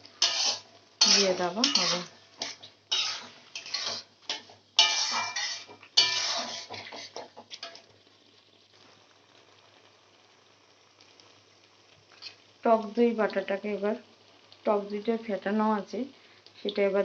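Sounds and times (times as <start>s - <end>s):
metal utensil scraping a pan: 0.0s - 7.9s
faint hiss: 0.0s - 17.0s.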